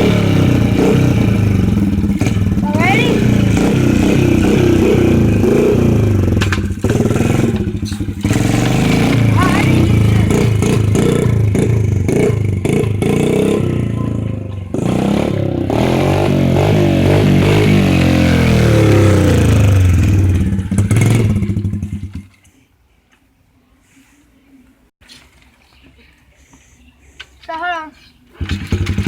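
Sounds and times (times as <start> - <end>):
dirt bike engine revving: 0.0 - 22.3, 28.4 - 29.0
clattering: 6.3 - 11.8.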